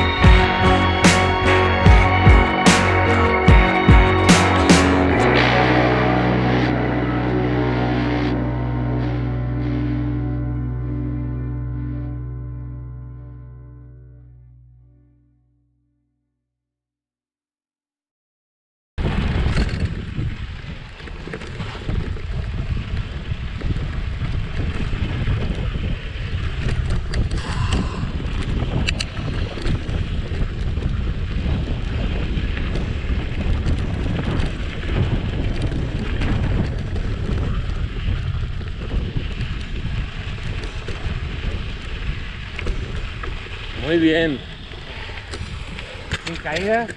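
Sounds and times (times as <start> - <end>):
wind buffeting microphone: 19.0 - 46.9.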